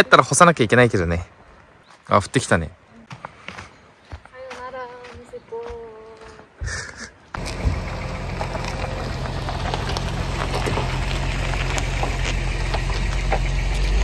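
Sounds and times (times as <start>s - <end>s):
rain pattering: 7.4s - 14.0s.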